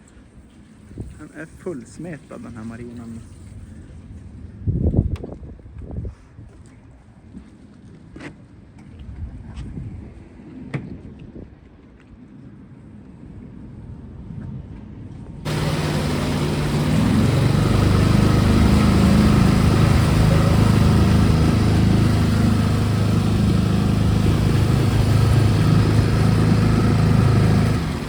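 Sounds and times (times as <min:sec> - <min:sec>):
engine running steadily: 0:15.5 - 0:28.0
hiss: 0:15.5 - 0:28.0.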